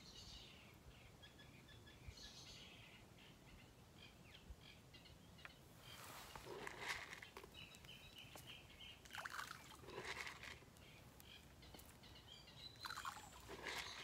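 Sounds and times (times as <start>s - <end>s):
faint bird chirps: 10.8s - 14.0s.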